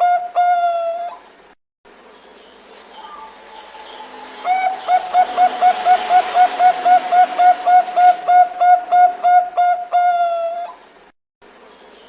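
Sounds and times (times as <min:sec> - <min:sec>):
dove cooing: 0:00.0 - 0:01.2, 0:03.0 - 0:10.8.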